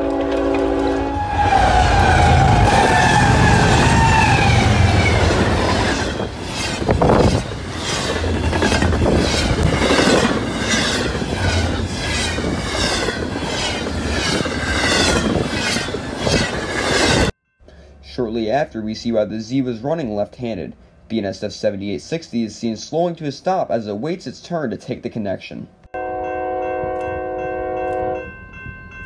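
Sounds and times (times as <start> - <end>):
train cars rushing past: 0.0 - 17.3
wheels clacking on rail joints: 0.0 - 17.3
locomotive passing: 0.0 - 22.9.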